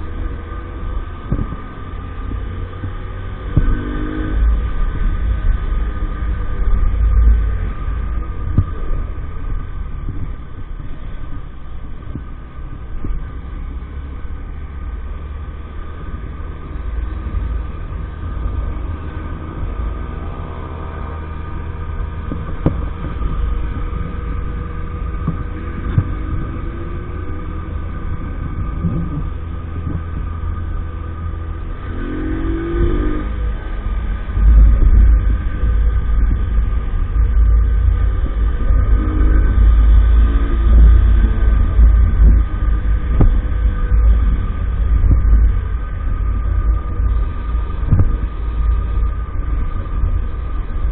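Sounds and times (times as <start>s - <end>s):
motorbike engine revving: 15.9s - 50.9s.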